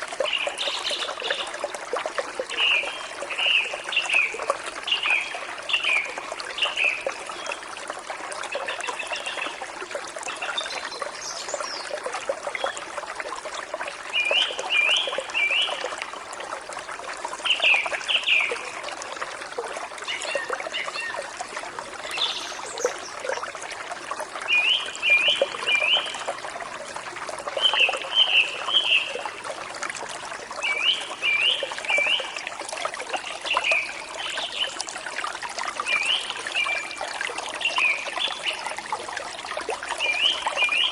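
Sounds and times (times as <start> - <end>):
stream trickling and splashing: 0.0 - 40.9
songbird singing: 27.5 - 29.2.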